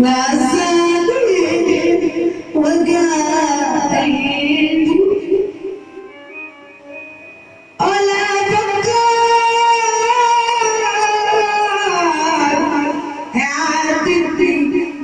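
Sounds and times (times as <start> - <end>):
music with person singing: 3.8 - 10.6.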